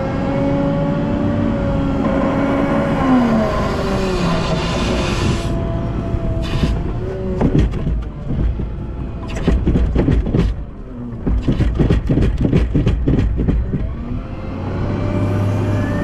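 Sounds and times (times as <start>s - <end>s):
wheel loader engine under load: 0.0s - 16.0s
rapid clattering knocks: 6.4s - 14.0s.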